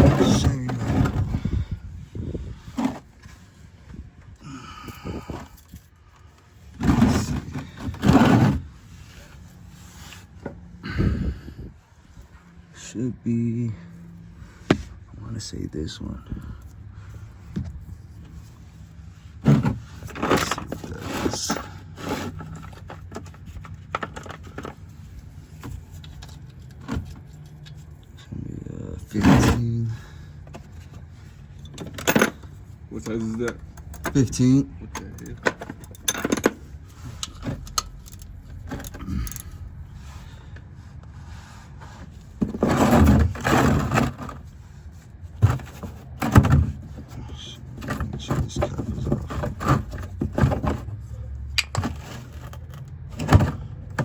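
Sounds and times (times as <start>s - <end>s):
rustling and scraping: 0.0s - 13.0s, 13.9s - 54.0s
metal tools scraping: 19.9s - 28.3s, 28.9s - 40.4s
metal tools clinking: 31.6s - 39.7s.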